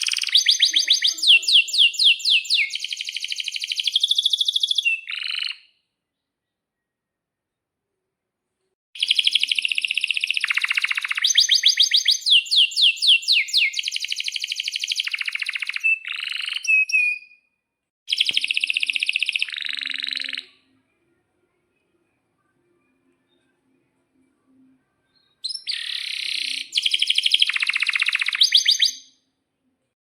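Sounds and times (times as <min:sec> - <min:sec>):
canary singing trills: 0:00.0 - 0:05.8, 0:09.0 - 0:17.5, 0:18.1 - 0:20.8, 0:25.2 - 0:29.2.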